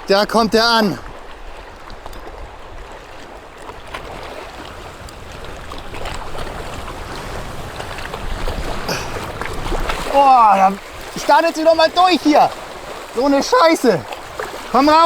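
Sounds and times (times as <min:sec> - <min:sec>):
sea water washing against rocks: 0:00.0 - 0:15.0
wind rumbling on microphone: 0:01.0 - 0:13.2.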